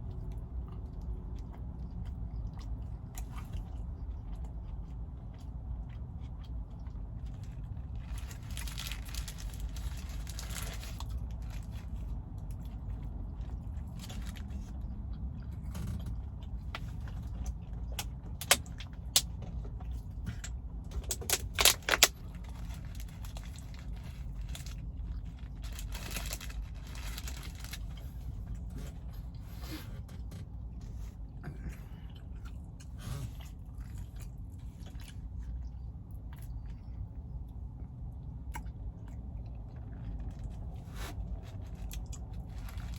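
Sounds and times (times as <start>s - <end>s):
low rumble inside car cabin: 0.0s - 42.9s
rustling: 8.0s - 12.0s, 21.6s - 29.2s
sharp clicks and crackles: 20.9s - 23.8s.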